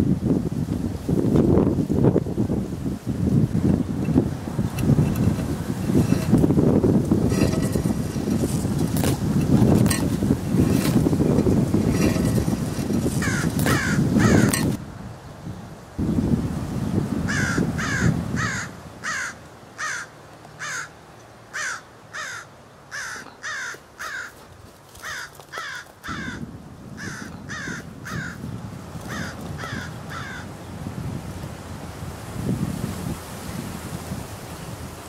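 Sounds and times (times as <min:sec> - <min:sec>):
low wind rumble: 0:00.0 - 0:35.0
bird harsh calls: 0:13.2 - 0:14.8, 0:17.3 - 0:24.4, 0:29.1 - 0:30.5.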